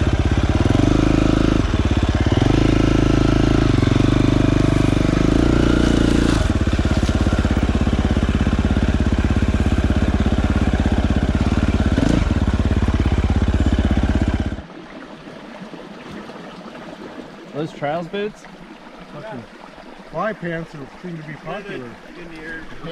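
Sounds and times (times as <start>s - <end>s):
dirt bike engine idling: 0.0s - 14.7s.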